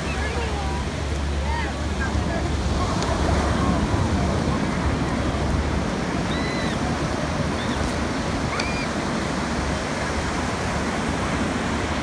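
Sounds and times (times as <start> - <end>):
ocean surf washing: 0.0 - 12.0.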